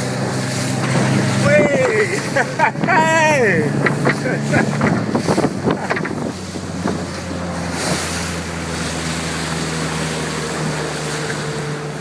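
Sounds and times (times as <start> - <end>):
boat engine humming: 0.0 - 12.0
water rushing: 0.0 - 12.0
wind on microphone: 0.4 - 9.8.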